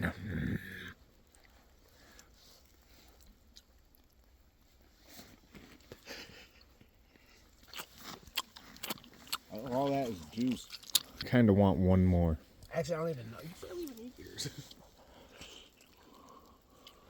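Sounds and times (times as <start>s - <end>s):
faint chewing and mouth sounds: 0.0s - 17.0s
small wet clicks: 7.6s - 11.4s.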